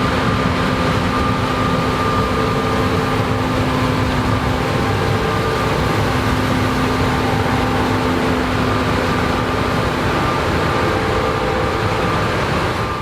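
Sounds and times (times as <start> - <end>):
combine harvester running: 0.0 - 13.0
steady mechanical hums: 0.0 - 13.0.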